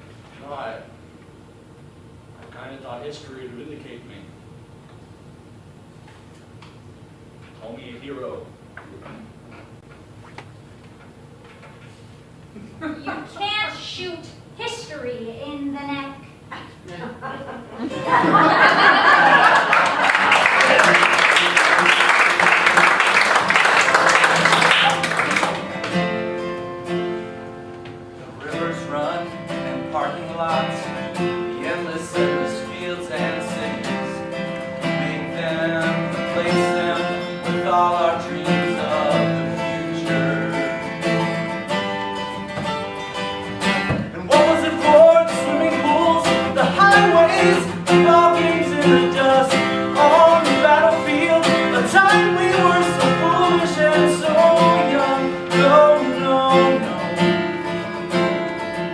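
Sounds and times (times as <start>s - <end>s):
strummed acoustic guitar: 17.9s - 58.9s.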